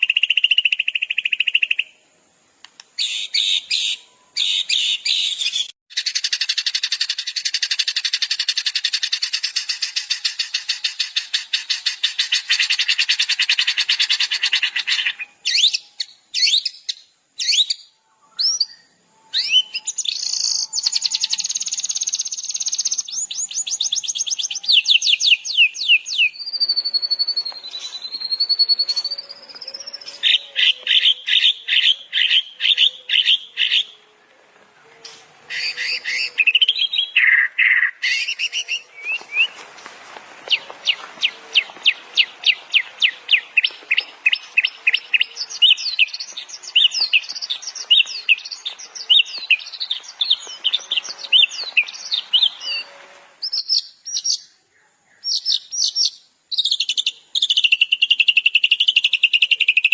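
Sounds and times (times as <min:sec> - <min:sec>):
bird wavering whistle: 0:17.4 - 0:34.0, 0:40.5 - 0:53.9
songbird trills and chip notes: 0:40.5 - 0:54.5.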